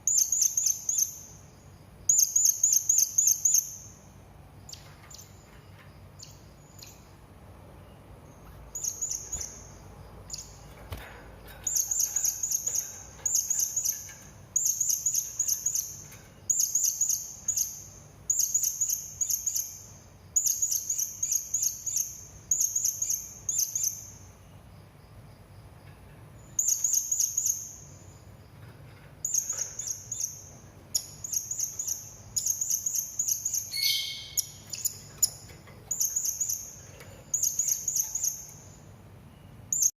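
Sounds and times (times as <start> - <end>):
parrot high thin chirps: 33.4 - 35.4.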